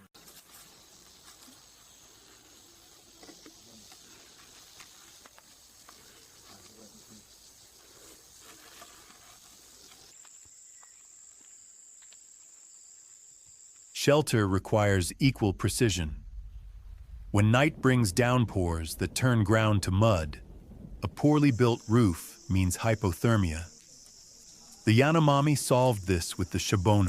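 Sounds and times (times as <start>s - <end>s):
insects droning: 0.0s - 27.0s
small ticks and rustles: 0.1s - 14.0s, 23.7s - 24.8s.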